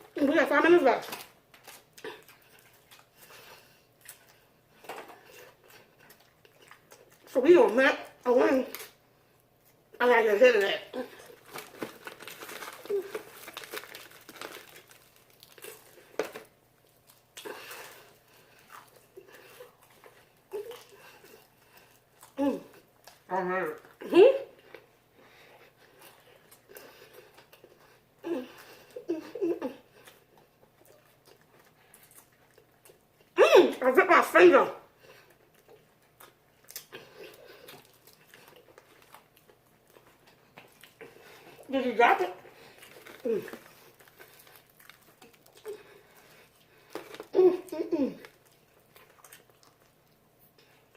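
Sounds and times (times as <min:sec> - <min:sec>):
chewing crunchy food: 0:01.0 - 0:10.0, 0:10.9 - 0:29.0, 0:29.9 - 0:33.4, 0:34.9 - 0:41.7, 0:42.4 - 0:50.9
fried chicken crinkling and tearing: 0:11.2 - 0:23.2, 0:42.5 - 0:47.3.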